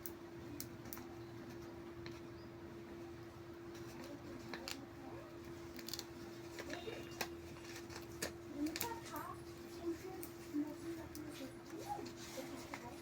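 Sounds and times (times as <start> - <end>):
faint steady hum: 0.0 - 13.0
sticker peeling crackles: 3.7 - 13.0.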